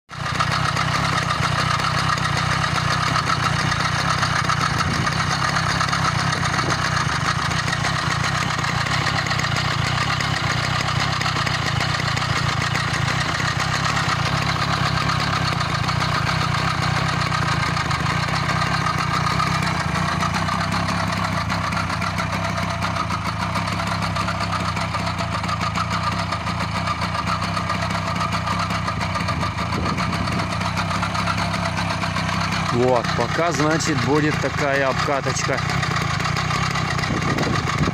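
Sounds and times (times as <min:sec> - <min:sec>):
scooter engine idling: 0:00.1 - 0:37.9.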